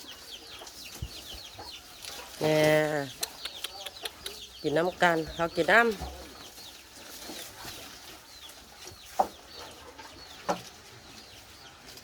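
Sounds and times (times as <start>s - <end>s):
bird clucking notes: 1.3s - 6.6s.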